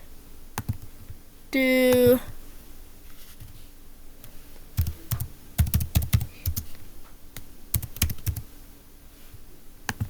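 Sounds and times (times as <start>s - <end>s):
computer keyboard keys clicking: 0.6s - 1.2s, 4.8s - 6.7s, 7.7s - 8.4s.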